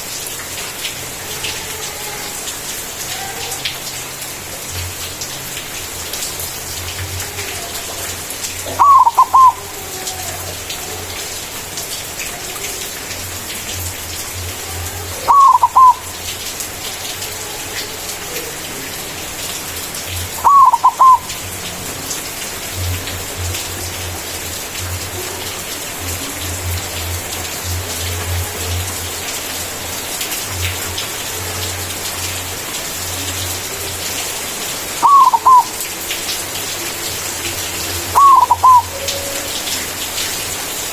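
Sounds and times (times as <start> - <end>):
dove cooing: 8.6 - 11.2, 15.1 - 16.2, 20.4 - 21.4, 35.0 - 35.8, 37.9 - 39.7.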